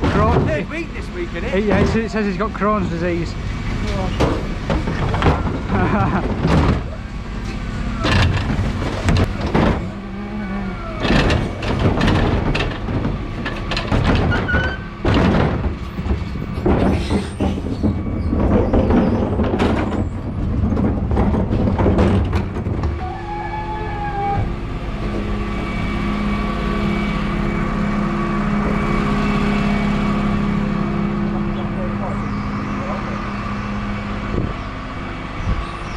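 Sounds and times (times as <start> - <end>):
bins banging and clattering: 0.0 - 23.3
truck engine humming: 0.0 - 35.9.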